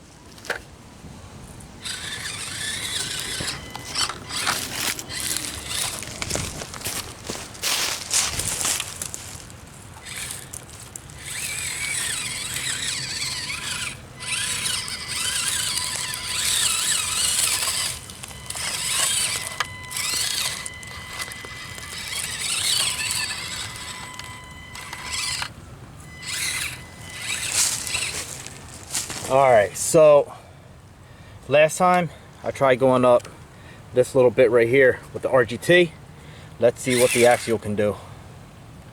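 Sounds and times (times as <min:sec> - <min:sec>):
small electric motor whining: 0:01.7 - 0:29.4, 0:36.8 - 0:37.6.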